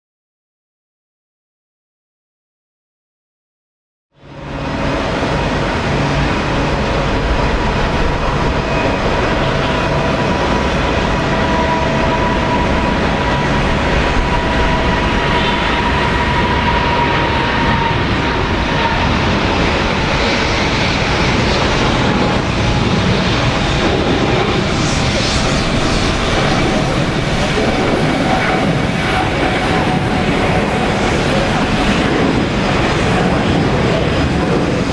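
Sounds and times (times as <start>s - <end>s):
jet engines rushing and whining: 4.2s - 34.9s.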